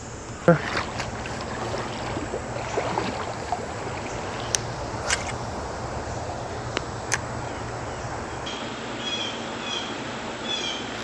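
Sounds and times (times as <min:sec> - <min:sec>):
river water rushing: 0:00.0 - 0:09.0.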